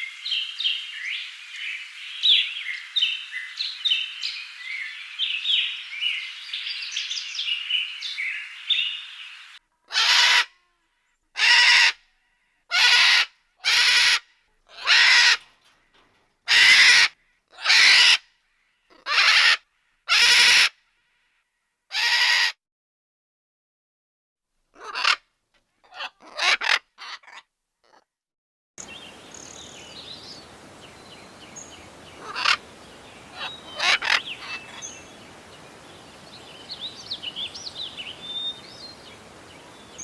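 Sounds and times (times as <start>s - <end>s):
small birds chirping: 0.0s - 9.6s, 28.8s - 40.0s
large bird harsh calls: 7.0s - 20.7s, 24.8s - 25.2s, 25.9s - 28.0s, 31.2s - 40.0s.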